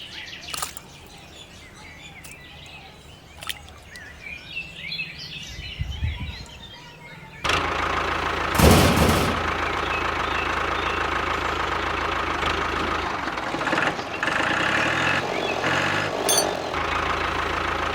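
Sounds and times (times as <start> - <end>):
diesel water pump engine knocking: 7.5 - 14.6.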